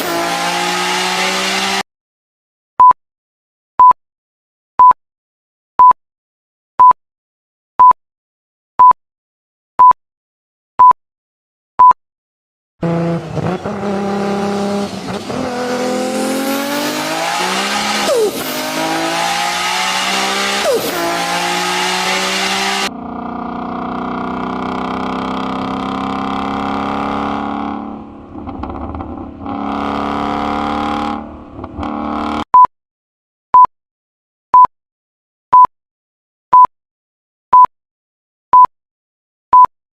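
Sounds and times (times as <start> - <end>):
car engine accelerating: 0.0 - 1.8, 12.8 - 32.4
electronic timer beeps: 32.5 - 32.7, 35.5 - 35.7, 36.5 - 36.7, 37.5 - 37.7, 38.5 - 38.7, 39.5 - 39.7.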